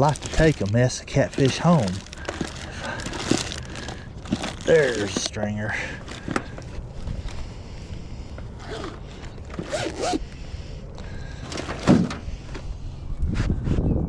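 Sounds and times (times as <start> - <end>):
fishing gear rustling and clicking: 0.0 - 10.3.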